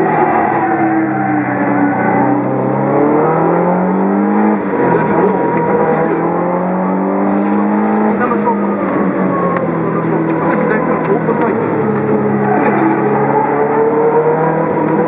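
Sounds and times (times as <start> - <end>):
car engine pulling hard: 0.0 - 15.0.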